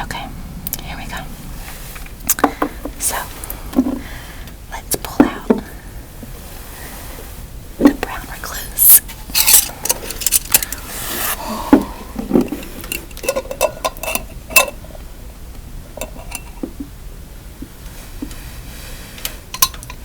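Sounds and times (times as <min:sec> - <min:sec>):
jar clicks and scrapes: 0:09.0 - 0:14.9, 0:16.0 - 0:16.9, 0:19.2 - 0:20.0.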